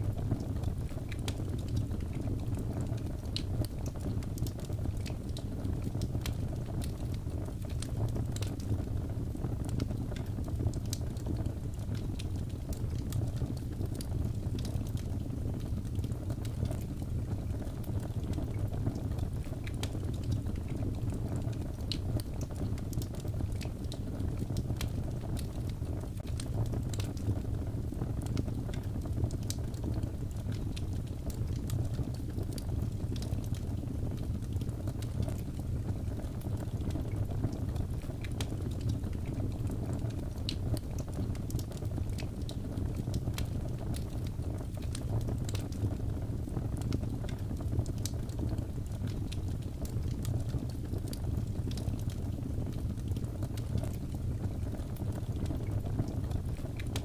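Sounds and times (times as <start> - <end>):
wood crackling and popping: 0.0 - 57.0
wood fire burning: 0.0 - 57.0.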